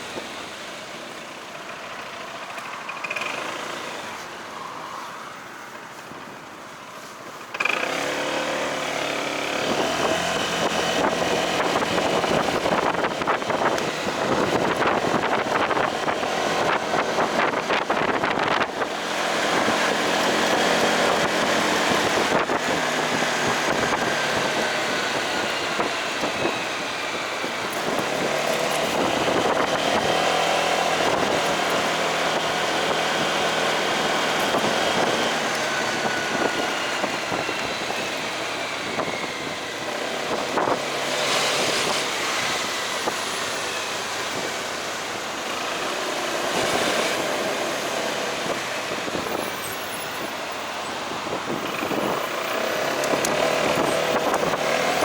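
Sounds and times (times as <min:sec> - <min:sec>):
motorcycle engine running: 0:00.0 - 0:04.3
road and wind noise: 0:00.0 - 0:55.0.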